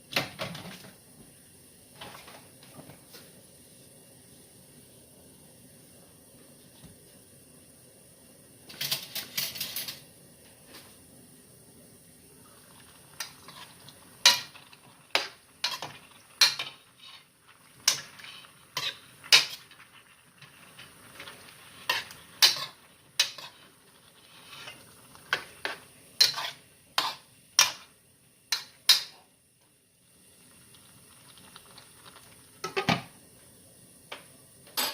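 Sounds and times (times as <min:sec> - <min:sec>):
utensil scraping a pan: 0:13.2 - 0:27.8.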